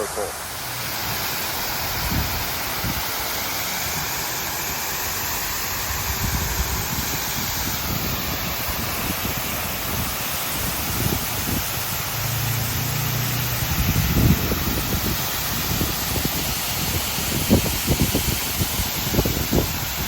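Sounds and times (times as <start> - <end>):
waterfall rushing: 0.0 - 20.0
wind on microphone: 1.8 - 3.1, 5.8 - 20.0.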